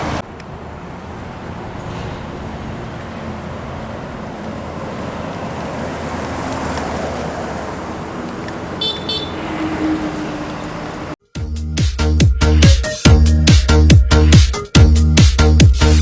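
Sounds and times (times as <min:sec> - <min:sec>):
road traffic with heavy vehicles: 0:00.0 - 0:11.2
high-pitched horn toots: 0:08.7 - 0:11.2.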